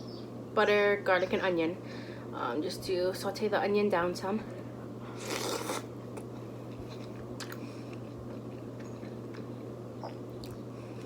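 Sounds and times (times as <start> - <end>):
overhead fan hum: 0.0 - 11.0
person chewing: 5.1 - 11.0.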